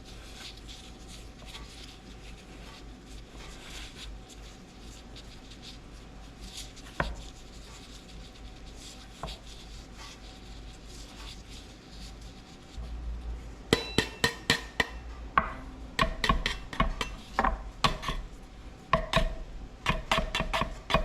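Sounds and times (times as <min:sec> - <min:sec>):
sharp knocks and clinks: 0:13.7 - 0:15.6.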